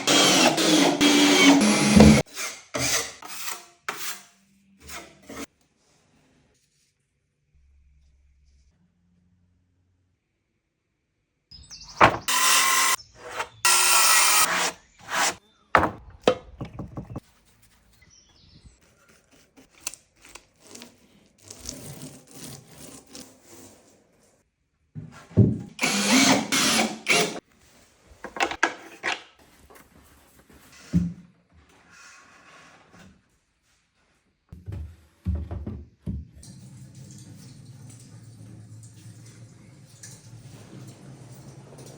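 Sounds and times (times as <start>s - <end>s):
power drill on wood: 0.0s - 3.1s, 12.0s - 15.4s, 25.8s - 27.4s.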